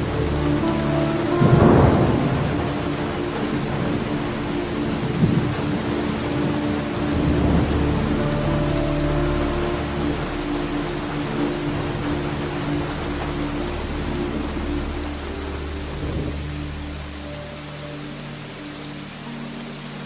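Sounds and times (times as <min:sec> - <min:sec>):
thunder rumbling: 0:00.0 - 0:16.8
steady rain: 0:00.0 - 0:20.0
sharp thunder crack: 0:01.4 - 0:02.8.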